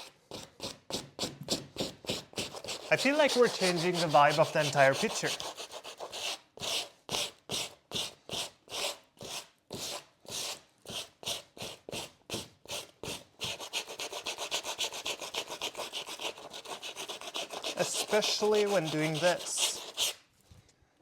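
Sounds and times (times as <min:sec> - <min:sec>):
sandpaper rubbing on painting: 0:00.4 - 0:06.8, 0:12.8 - 0:20.2.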